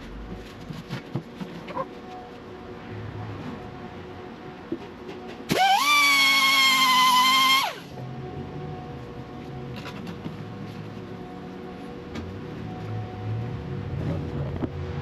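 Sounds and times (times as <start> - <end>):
angle grinder whine: 5.5 - 7.9.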